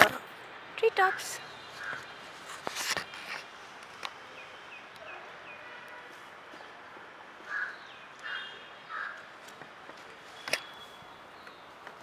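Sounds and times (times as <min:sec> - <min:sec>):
harsh bird calls: 0:00.0 - 0:03.4, 0:07.4 - 0:09.3.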